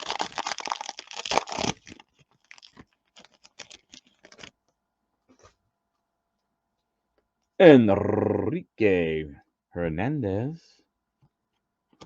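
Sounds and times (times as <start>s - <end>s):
card pack wrapper tearing: 0.0s - 4.5s
light crinkles and clicks: 0.0s - 5.6s.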